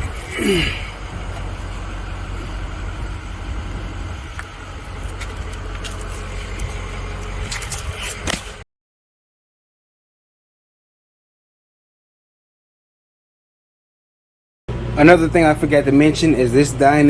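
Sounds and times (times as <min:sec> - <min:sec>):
low engine hum: 0:00.0 - 0:08.6.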